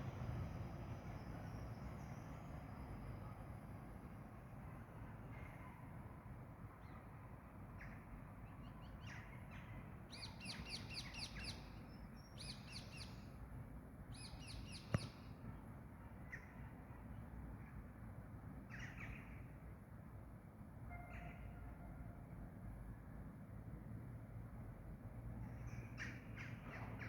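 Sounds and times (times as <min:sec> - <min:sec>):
songbird singing: 0:08.6 - 0:13.4, 0:14.1 - 0:15.4.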